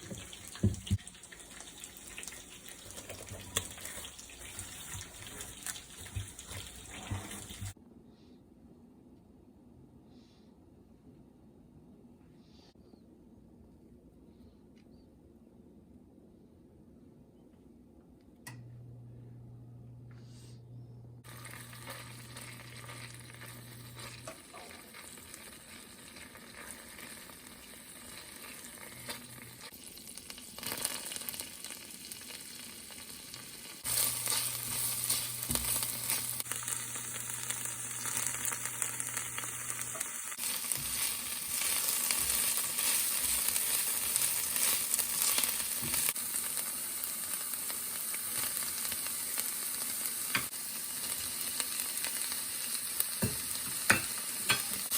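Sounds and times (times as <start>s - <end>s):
food sizzling in hot oil: 0.0s - 7.8s, 21.2s - 54.9s.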